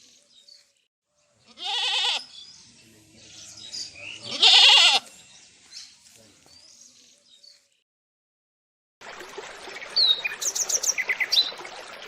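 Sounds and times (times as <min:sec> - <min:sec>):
goat bleating: 0:01.5 - 0:02.3, 0:04.2 - 0:05.1.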